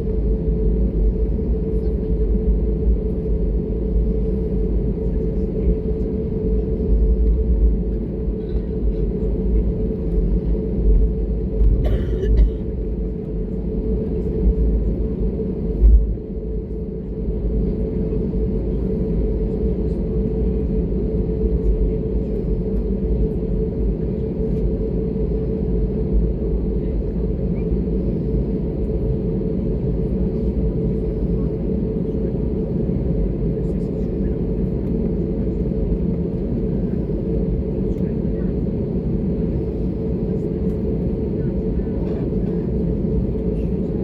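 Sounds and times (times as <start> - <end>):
airliner cabin rumble: 0.0 - 44.0.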